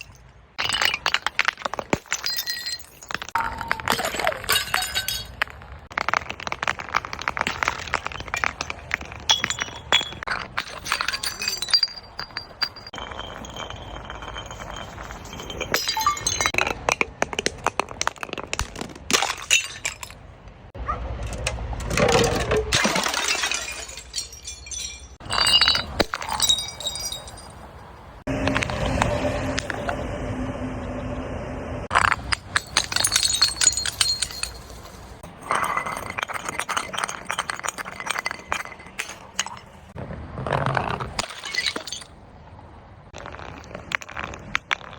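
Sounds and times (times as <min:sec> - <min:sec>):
glass shards clinking: 0:00.0 - 0:05.5, 0:07.0 - 0:16.7, 0:22.4 - 0:30.0, 0:31.9 - 0:40.0, 0:41.1 - 0:42.1
glass crunching and cracking: 0:00.0 - 0:20.2, 0:22.7 - 0:28.8, 0:31.9 - 0:42.1, 0:43.1 - 0:44.9.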